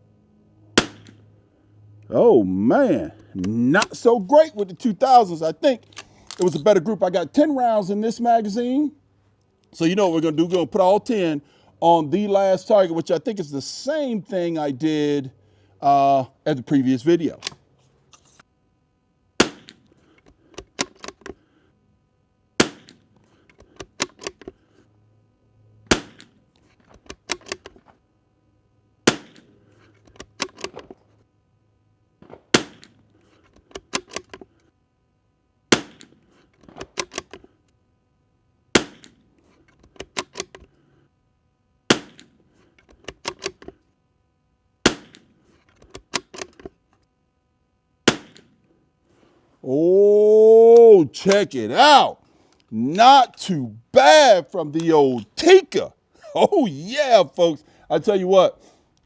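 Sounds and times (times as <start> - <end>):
rifle shots: 0.8 - 1.1, 19.4 - 19.8, 22.6 - 23.0, 25.9 - 26.3, 29.0 - 29.5, 32.2 - 33.0, 35.7 - 36.9, 38.7 - 39.2, 41.9 - 42.3, 44.8 - 45.3, 48.1 - 48.5
rifle bolt metallic clicks: 19.6 - 21.4, 22.9 - 24.6, 26.9 - 27.8, 30.1 - 30.8, 33.5 - 34.4, 35.9 - 37.4, 39.0 - 40.7, 42.1 - 43.7, 45.8 - 46.7.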